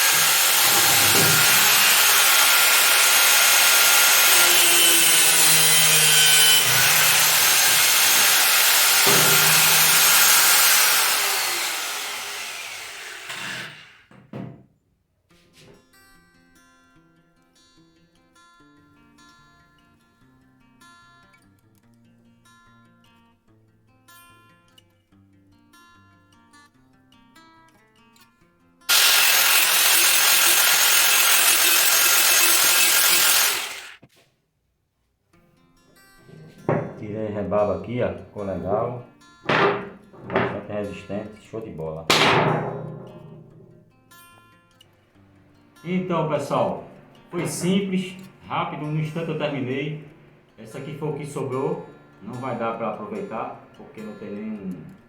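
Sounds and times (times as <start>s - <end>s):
angle grinder cutting metal wire: 0.0s - 14.1s, 28.9s - 34.1s.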